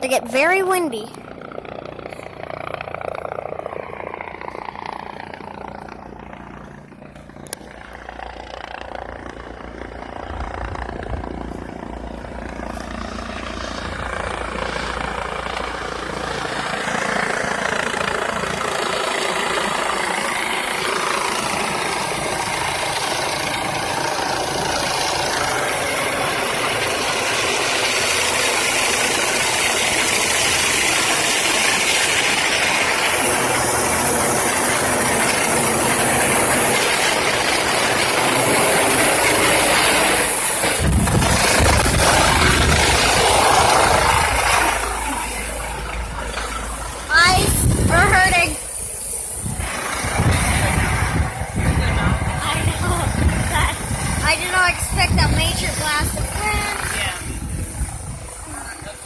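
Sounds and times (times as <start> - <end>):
helicopter rotor noise: 0.0 - 59.0
rotor downwash rushing on microphone: 35.2 - 48.7, 49.4 - 59.0.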